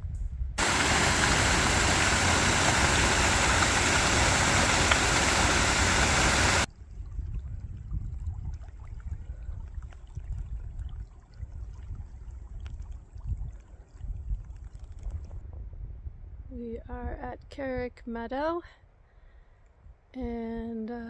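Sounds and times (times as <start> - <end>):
fast-flowing creek water: 0.6 - 6.7.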